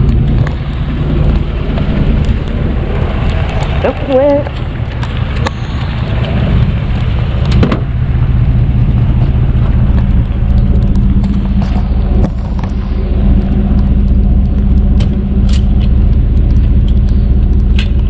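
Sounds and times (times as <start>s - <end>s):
vehicle engine rumbling: 0.0s - 18.0s
sharp clicks and knocks: 8.8s - 18.0s.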